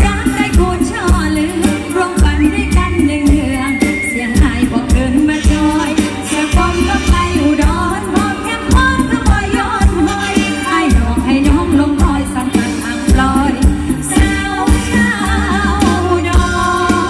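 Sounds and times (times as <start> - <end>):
band with drum beat: 0.0 - 17.0
person singing: 0.0 - 17.0.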